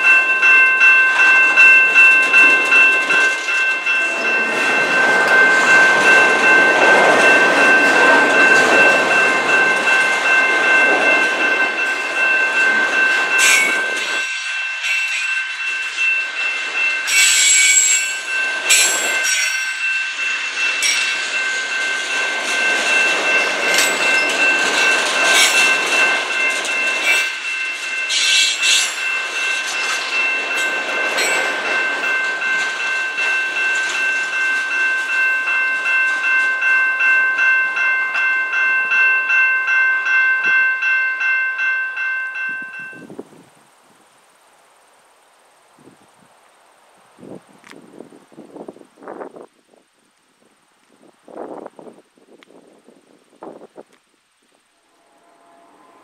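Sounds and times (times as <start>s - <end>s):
wheels clicking over rail joints: 0.0s - 40.7s
high-pitched ringing tones: 0.0s - 44.2s
train rumble: 0.0s - 45.2s.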